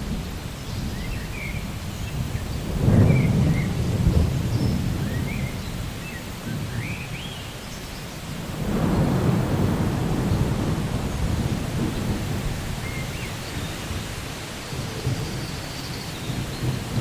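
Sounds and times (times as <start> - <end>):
low rolling thunder: 0.0 - 7.0, 8.4 - 17.0
steady rain: 0.0 - 17.0.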